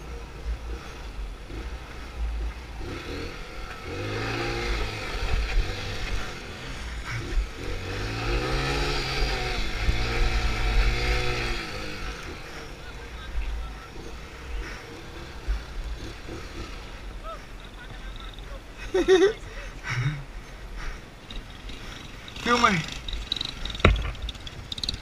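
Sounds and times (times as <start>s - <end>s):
motorcycle engine revving: 0.0s - 19.3s, 21.2s - 25.0s.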